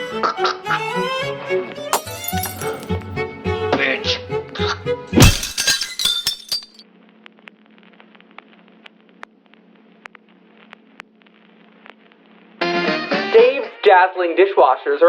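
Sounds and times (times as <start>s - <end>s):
music: 0.0s - 5.2s, 12.6s - 14.1s
glass breaking with a crash: 2.0s - 3.0s, 5.2s - 6.8s.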